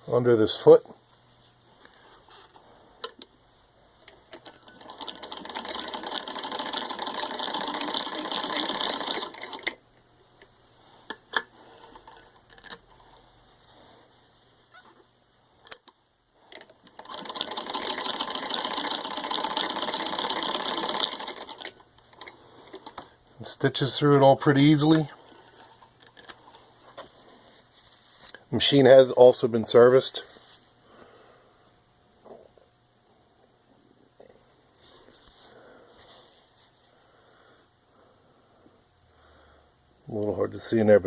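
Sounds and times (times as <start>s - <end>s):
sewing machine stitching fast: 4.7s - 9.8s, 16.9s - 23.0s.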